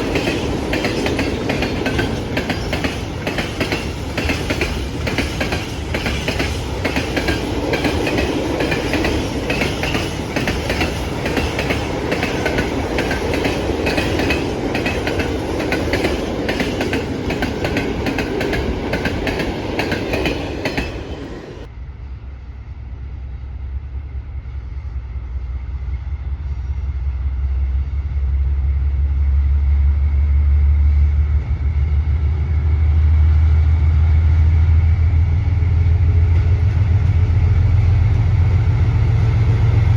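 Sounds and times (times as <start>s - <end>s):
train wheels clickety-clack: 0.0s - 21.7s, 34.4s - 39.9s.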